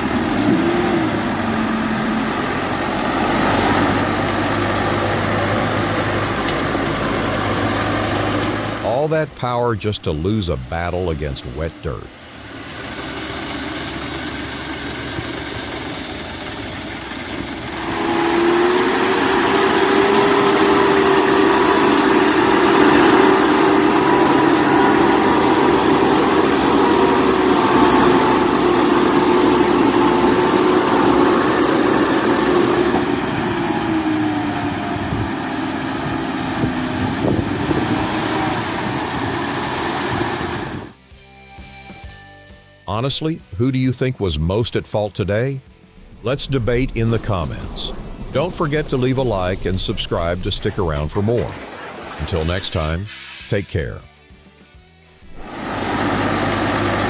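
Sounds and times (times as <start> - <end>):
truck engine revving hard: 0.0 - 9.1, 10.2 - 41.0, 55.2 - 57.0.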